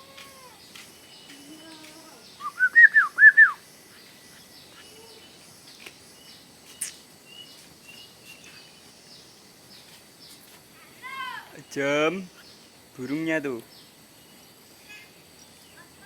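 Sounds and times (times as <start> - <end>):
faint bird chirps: 0.0 - 9.4
bird whistled notes: 2.4 - 3.6.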